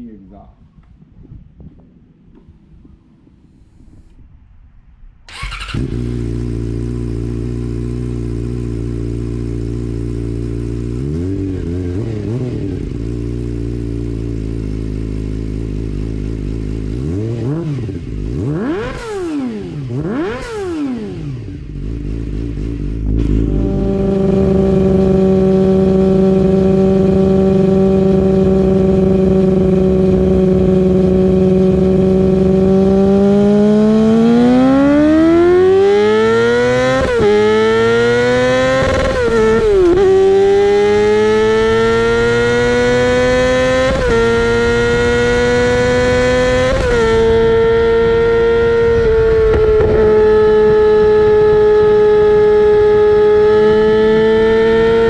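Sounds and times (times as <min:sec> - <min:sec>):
motorcycle engine revving: 0:05.3 - 0:55.0.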